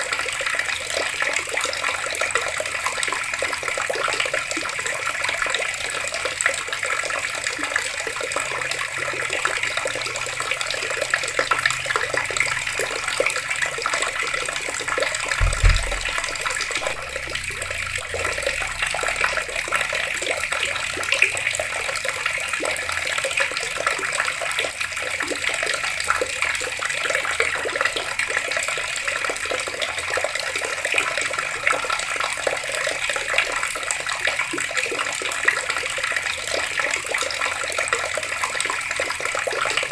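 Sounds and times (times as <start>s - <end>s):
water taps running: 0.0s - 31.6s
dull thump: 15.4s - 18.1s.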